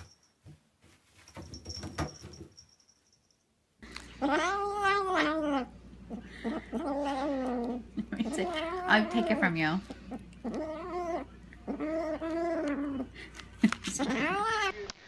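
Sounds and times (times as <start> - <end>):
cat yowling: 4.2 - 5.7, 6.7 - 7.8, 10.4 - 13.0, 14.0 - 14.8.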